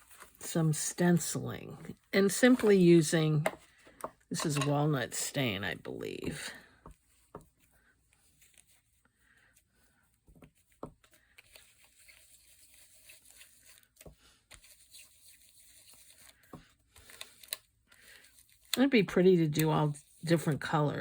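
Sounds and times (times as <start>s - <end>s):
paper rustling: 0.0s - 0.5s, 6.2s - 18.8s.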